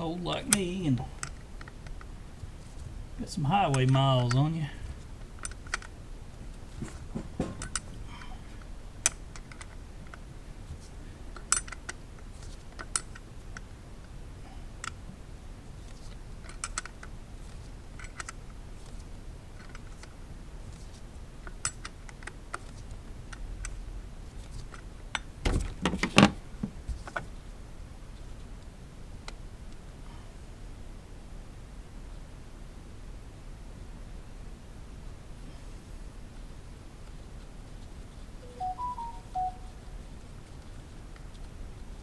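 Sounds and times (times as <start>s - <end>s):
knocks: 6.8s - 7.9s.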